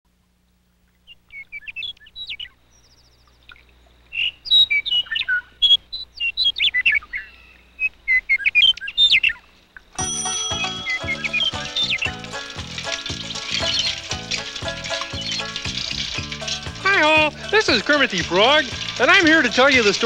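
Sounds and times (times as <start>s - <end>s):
songbirds chirping and twittering: 0.8s - 9.9s, 10.5s - 20.0s.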